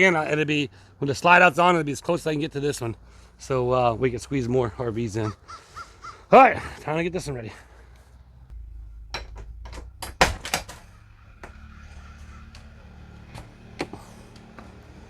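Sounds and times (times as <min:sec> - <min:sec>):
faint steady hum: 0:08.4 - 0:13.6
door and latches clicking: 0:09.1 - 0:11.7.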